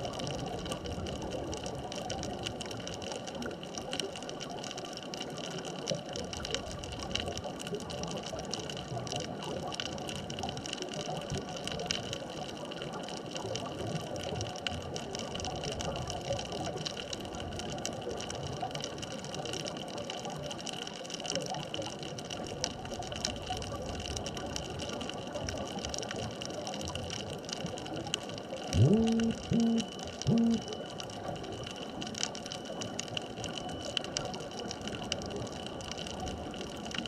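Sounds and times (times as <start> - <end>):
faint crackling clicks: 0.0 - 37.0
faint hums: 28.8 - 30.8.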